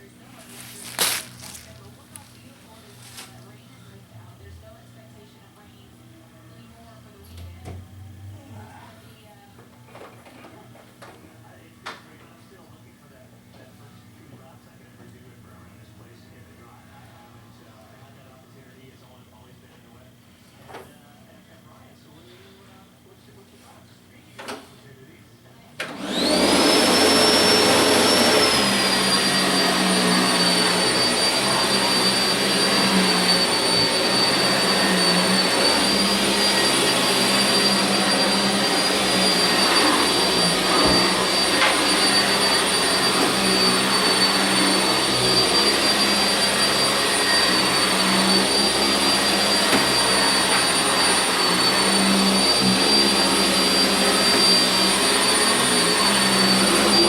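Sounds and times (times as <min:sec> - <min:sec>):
vacuum cleaner motor whining: 0:00.0 - 0:04.0, 0:25.8 - 0:57.0.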